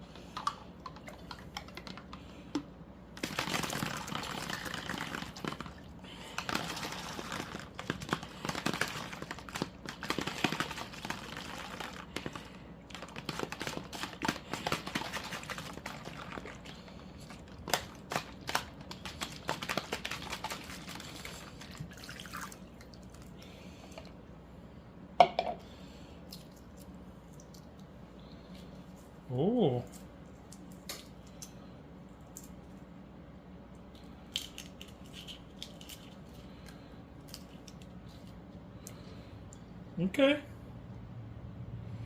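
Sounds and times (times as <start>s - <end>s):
eggshell crackling and snapping: 33.8s - 39.0s.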